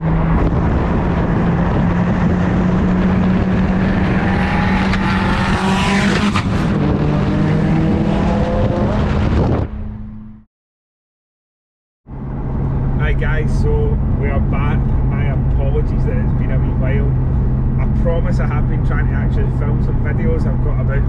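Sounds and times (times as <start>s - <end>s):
car engine running: 0.0s - 6.2s.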